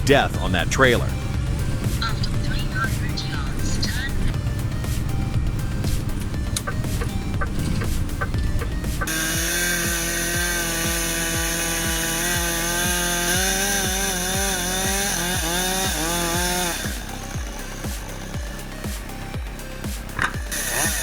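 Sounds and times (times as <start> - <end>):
background music with steady beat: 0.0 - 21.0
chainsaw cutting at high revs: 4.4 - 21.0.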